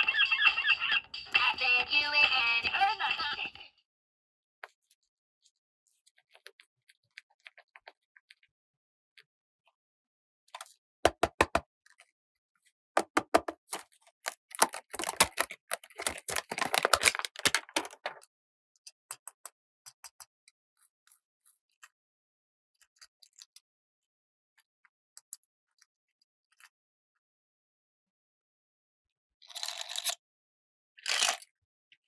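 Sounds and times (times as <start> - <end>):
plastic toy pieces clicking: 11.1 - 11.6, 13.0 - 18.2
toy pieces rattling and rustling: 13.0 - 18.2.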